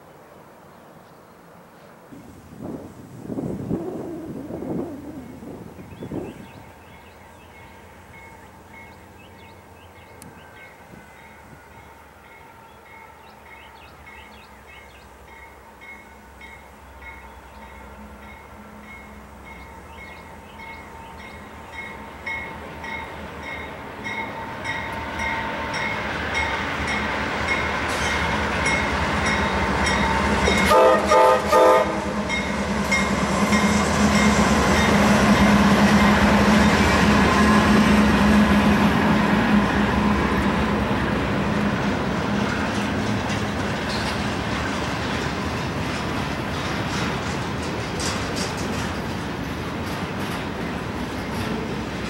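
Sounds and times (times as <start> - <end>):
diesel locomotive engine: 0.0 - 52.0
train bell ringing: 7.5 - 9.2, 10.0 - 14.5, 15.2 - 30.9, 32.3 - 35.0
train horn blasts: 30.2 - 32.6.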